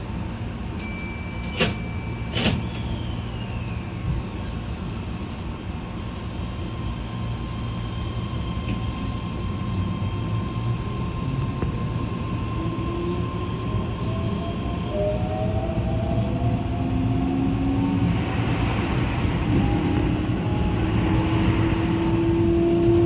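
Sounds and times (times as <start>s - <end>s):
train running rumble: 0.0s - 23.0s
brief electronic tone: 0.8s - 4.3s
train doors shutting thuds: 1.0s - 3.1s.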